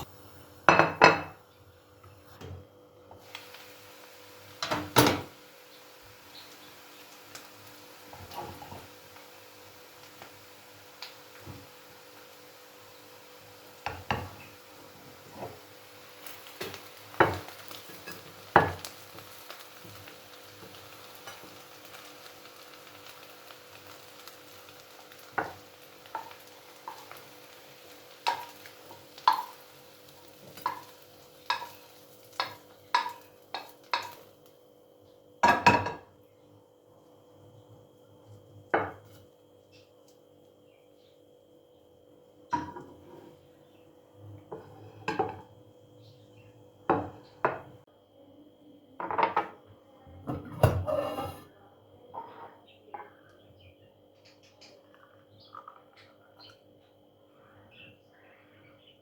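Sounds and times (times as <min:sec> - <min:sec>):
food sizzling in a pan: 0:00.0 - 0:34.8, 0:35.4 - 0:40.6, 0:42.0 - 0:47.9, 0:50.4 - 0:51.5
cookware knocking: 0:00.7 - 0:01.4
metal utensil scraping a pan: 0:50.4 - 0:51.5.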